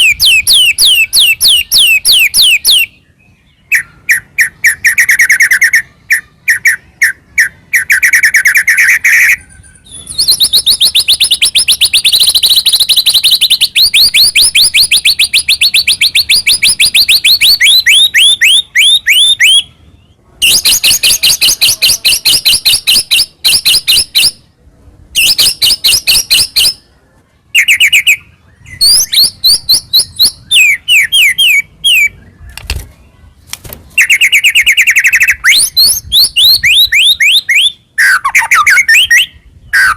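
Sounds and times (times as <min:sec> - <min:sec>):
bird singing sweeping notes: 0:00.0 - 0:24.4, 0:27.6 - 0:33.2.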